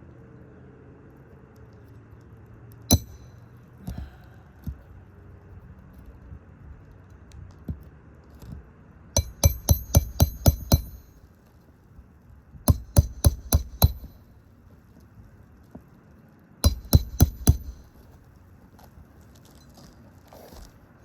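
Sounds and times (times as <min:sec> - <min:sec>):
hammer striking roofing nails: 0:02.9 - 0:03.3, 0:09.2 - 0:11.1, 0:12.7 - 0:14.2, 0:16.6 - 0:17.9.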